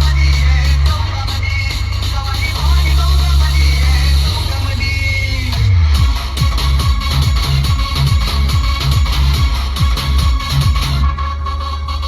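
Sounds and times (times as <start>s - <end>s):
booming bass: 0.0s - 12.0s
electronic dance music: 0.0s - 12.0s
punchy kick drum: 5.6s - 11.0s.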